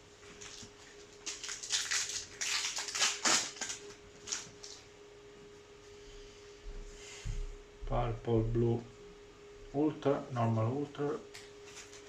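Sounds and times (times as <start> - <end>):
faint electrical hum: 0.0 - 12.0
foil wrapper crinkling and tearing: 0.3 - 4.9, 11.3 - 12.0.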